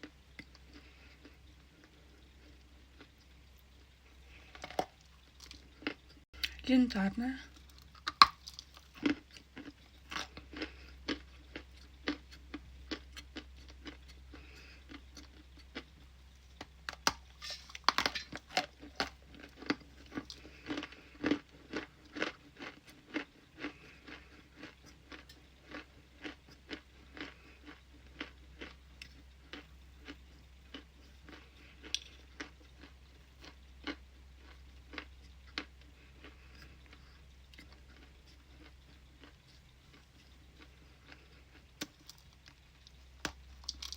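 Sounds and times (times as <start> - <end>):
ice being crunched by teeth: 7.7 - 9.2, 43.2 - 43.9.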